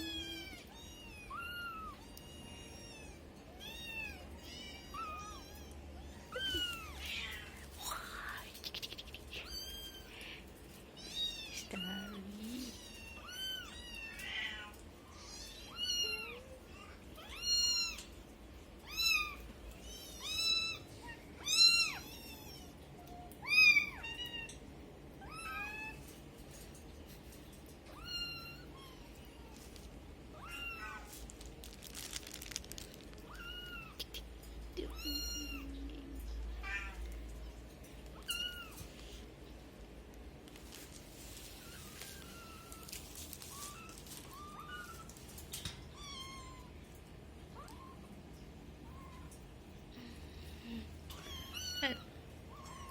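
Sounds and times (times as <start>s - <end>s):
kittens mewing: 0.0s - 18.0s, 27.9s - 37.1s.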